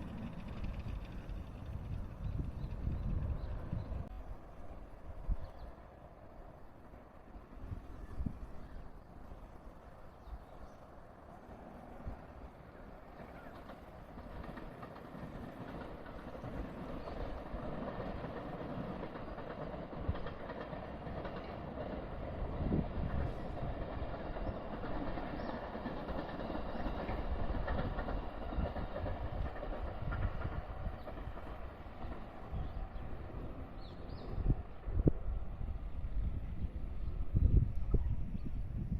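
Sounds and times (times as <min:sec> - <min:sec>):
wheel-on-rail clatter: 0:00.0 - 0:04.0
train rumbling past: 0:00.0 - 0:38.9.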